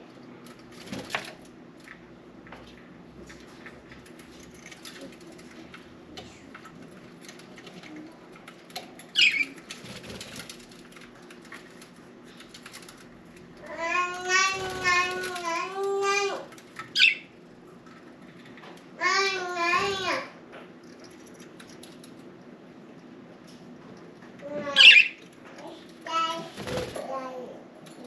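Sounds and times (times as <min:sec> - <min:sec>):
wings fluttering and splashing: 0:00.4 - 0:02.0, 0:03.2 - 0:18.6, 0:26.1 - 0:27.3.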